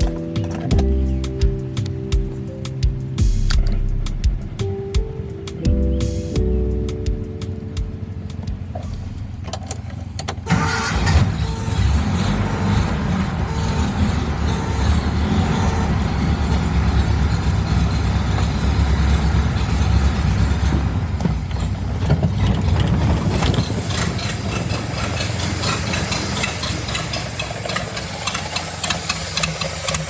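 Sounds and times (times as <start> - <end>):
truck engine rumbling: 0.0 - 30.0
hiss: 23.6 - 30.0.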